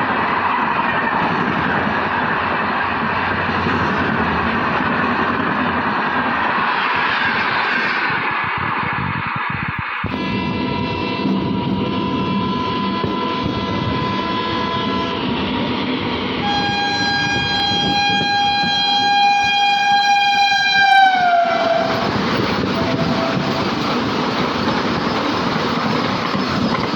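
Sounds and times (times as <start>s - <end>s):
train rumbling on bridge: 0.0s - 26.9s
train horn blasts: 10.1s - 15.4s, 16.4s - 23.8s.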